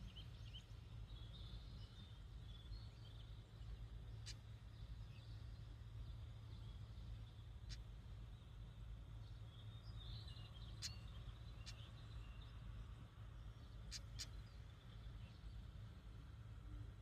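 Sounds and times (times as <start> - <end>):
bird chirping and ticking: 9.4 - 12.7, 13.5 - 15.5.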